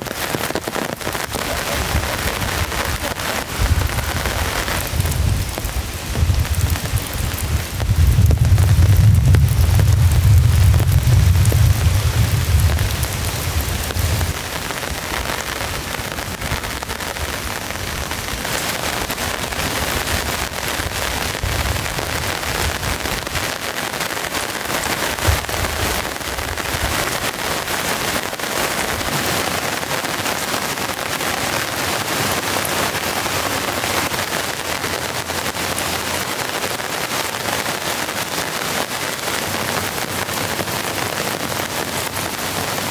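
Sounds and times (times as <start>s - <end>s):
heavy rain falling: 0.0s - 42.9s
low rumble of thunder: 1.3s - 18.4s, 19.0s - 23.6s, 25.1s - 27.4s.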